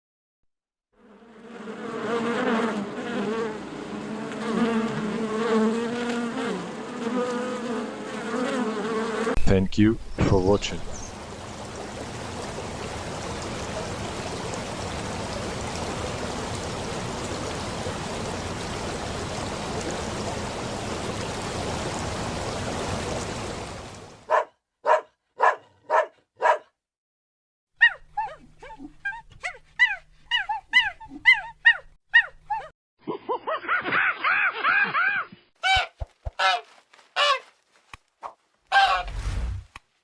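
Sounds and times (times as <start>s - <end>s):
dog yipping: 24.3s - 26.7s, 27.8s - 32.7s, 33.3s - 35.9s
dog barking: 24.3s - 26.8s, 27.8s - 28.4s.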